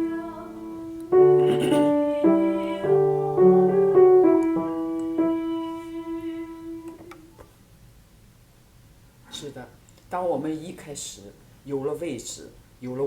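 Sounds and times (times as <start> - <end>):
piano accompaniment: 0.0 - 7.1
person singing: 0.0 - 7.3.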